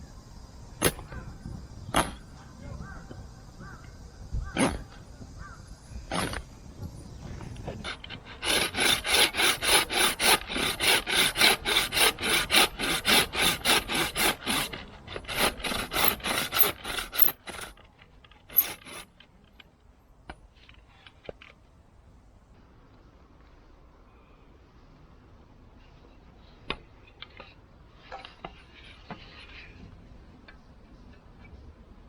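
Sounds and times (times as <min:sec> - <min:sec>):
hand saw cutting wood: 0:06.1 - 0:06.4, 0:07.6 - 0:19.2.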